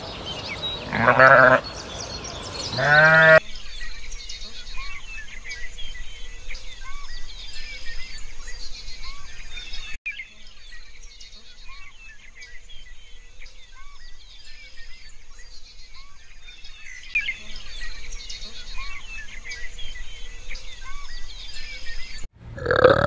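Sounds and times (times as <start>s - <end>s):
rising and falling bird call: 0.0s - 3.4s
small birds chirping: 0.0s - 23.0s.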